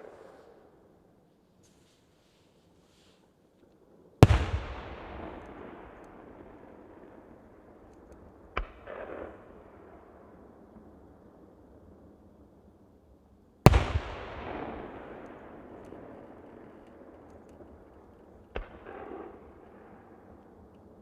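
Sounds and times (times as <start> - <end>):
rolling echo: 4.2 - 12.1, 13.6 - 21.0.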